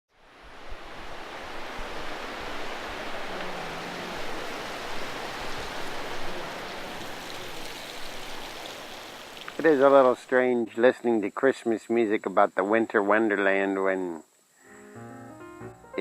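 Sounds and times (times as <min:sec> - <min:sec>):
river water rushing: 0:00.2 - 0:09.9.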